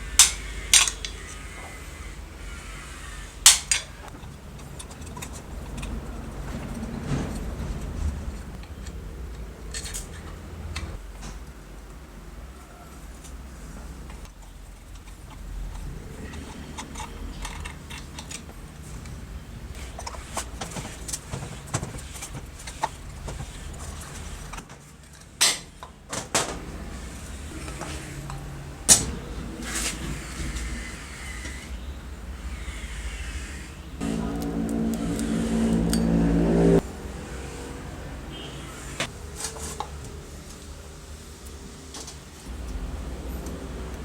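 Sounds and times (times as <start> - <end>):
small motor running: 0.0 - 3.5, 32.4 - 36.8
low hum: 34.0 - 38.0.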